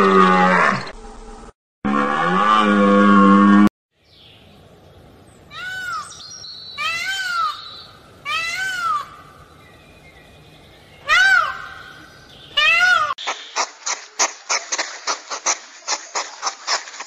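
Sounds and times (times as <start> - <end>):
peacock calling: 5.5 - 14.0.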